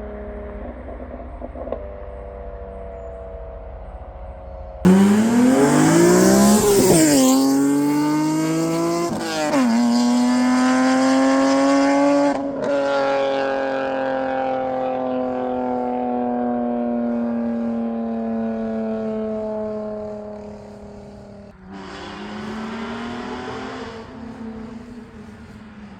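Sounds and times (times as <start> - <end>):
car engine revving: 4.9 - 17.2, 18.0 - 25.9.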